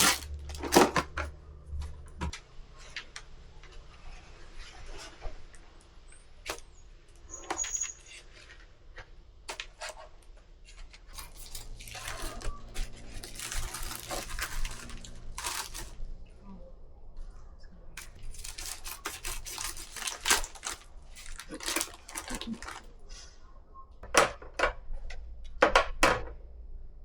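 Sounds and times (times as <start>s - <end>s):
rustling: 0.0s - 1.8s, 2.7s - 16.4s, 18.0s - 23.4s
small objects clicking and clinking: 11.2s - 16.0s, 18.0s - 22.9s.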